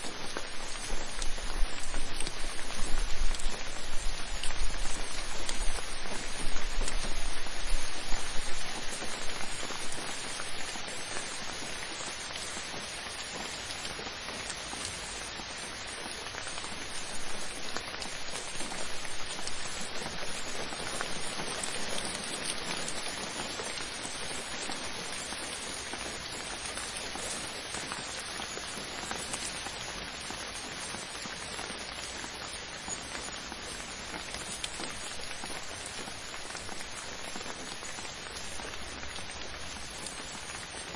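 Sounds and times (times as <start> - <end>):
individual raindrop ticks: 0.0 - 40.9
steady rain falling: 0.0 - 40.9.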